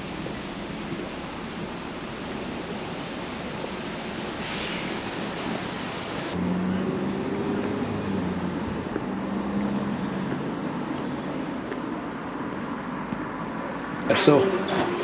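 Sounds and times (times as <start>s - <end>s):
rushing noise: 0.0s - 11.2s
vehicle engine humming: 6.3s - 15.0s.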